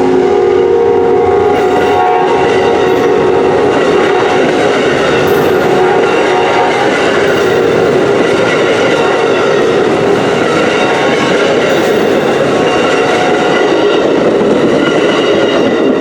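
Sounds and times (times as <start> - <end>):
passenger train passing: 0.0 - 16.0.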